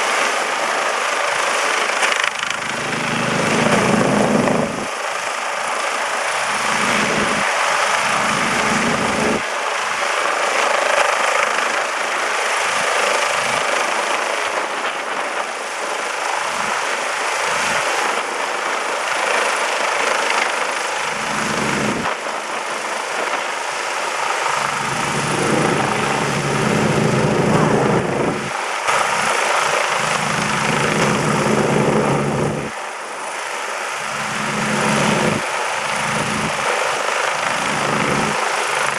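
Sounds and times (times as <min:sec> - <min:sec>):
helicopter rotor and turbine: 0:00.0 - 0:38.9
faint high whine: 0:00.6 - 0:38.9
wind buffeting microphone: 0:02.6 - 0:05.0, 0:06.4 - 0:09.4, 0:21.1 - 0:22.2, 0:24.5 - 0:32.8, 0:34.0 - 0:36.8, 0:37.4 - 0:38.9.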